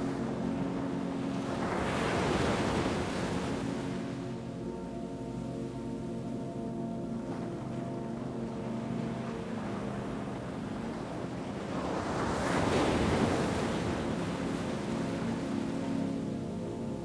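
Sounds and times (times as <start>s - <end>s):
low musical drone: 0.0s - 1.8s, 2.7s - 17.0s.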